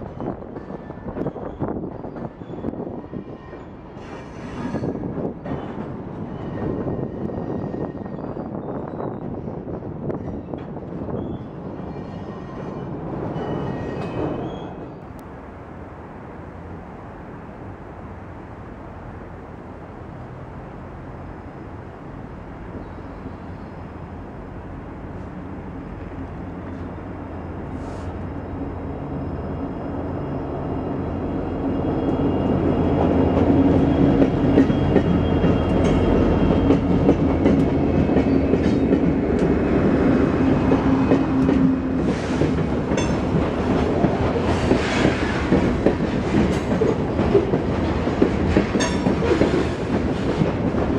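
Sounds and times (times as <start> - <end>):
freight train rumbling past: 0.0 - 50.9
wheels clacking over rail joints: 32.1 - 50.9.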